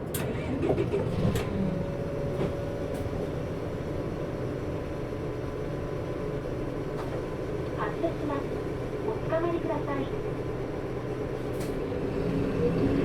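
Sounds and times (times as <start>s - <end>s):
bus engine and fan humming: 0.0s - 13.0s.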